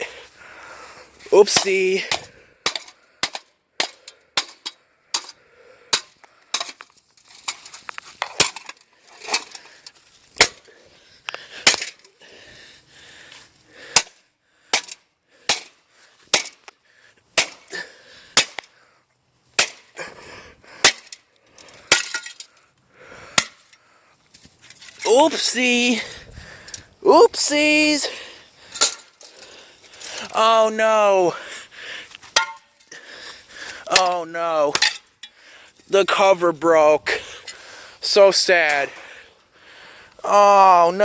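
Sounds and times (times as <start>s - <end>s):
metal and plastic parts smashing: 1.4s - 10.7s, 11.6s - 12.1s, 20.8s - 22.6s, 28.7s - 30.3s, 32.4s - 32.9s, 34.7s - 35.1s.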